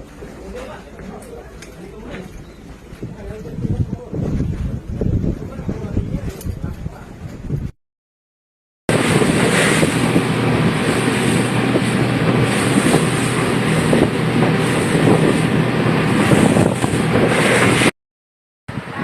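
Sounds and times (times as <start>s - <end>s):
wind buffeting microphone: 2.3s - 7.8s, 8.9s - 17.9s, 18.7s - 19.0s
boat engine running: 8.9s - 17.9s.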